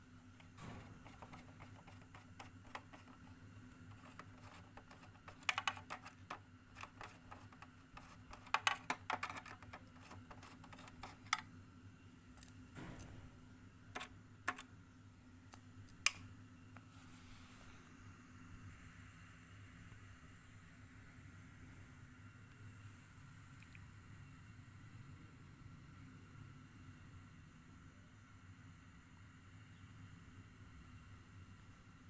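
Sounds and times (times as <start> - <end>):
faint steady hum: 0.0 - 32.0
tools clicking on plastic case: 3.9 - 11.4.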